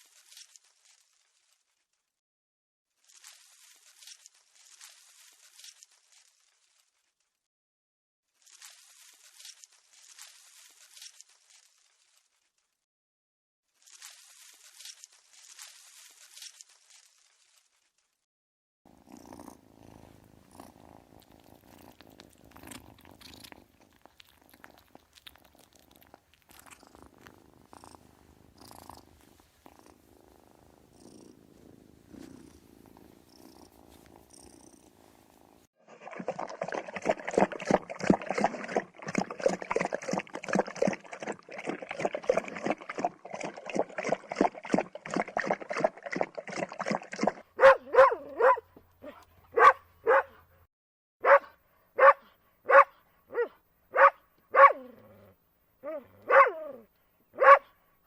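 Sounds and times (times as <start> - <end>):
cat purring: 18.9 - 35.7.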